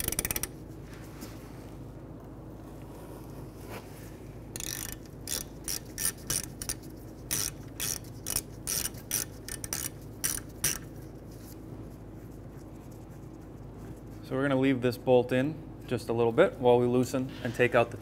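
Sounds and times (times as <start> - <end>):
ratchet clicking: 0.0 - 0.6, 4.6 - 10.9.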